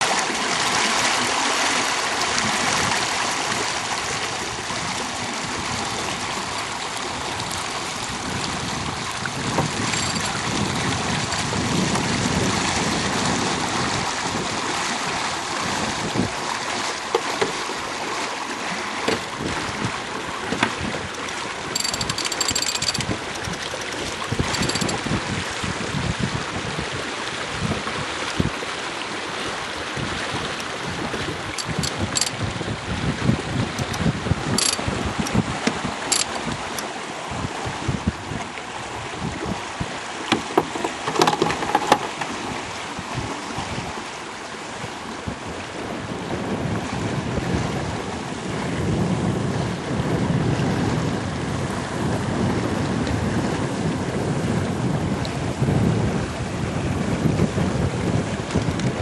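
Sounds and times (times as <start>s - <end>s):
water rushing along boat hull: 0.0s - 59.0s
wind on microphone: 0.0s - 59.0s
sharp knocks: 40.3s - 42.3s.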